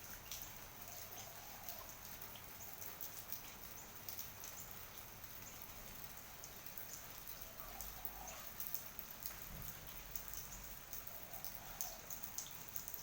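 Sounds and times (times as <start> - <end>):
rain drops ticking: 0.0 - 13.0
rain hiss: 0.0 - 13.0.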